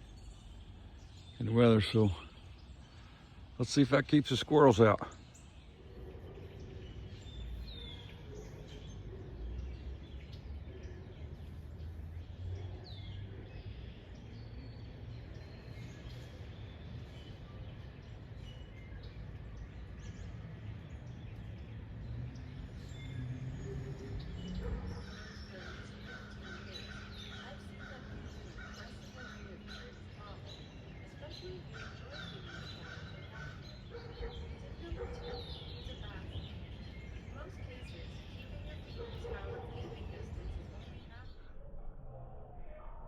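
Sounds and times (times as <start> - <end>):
bird chirps: 0.0 - 43.0
steady low rumble: 25.2 - 43.0.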